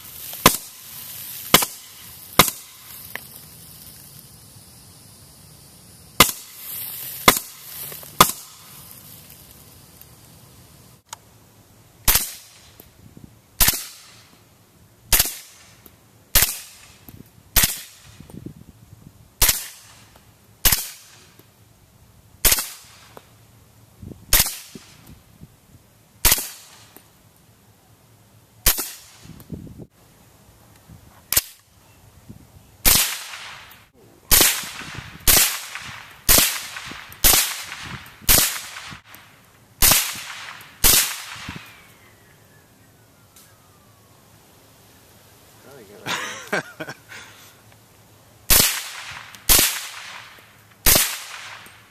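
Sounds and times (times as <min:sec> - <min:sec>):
suppressed pistol shots: 0:50.8 - 0:51.7.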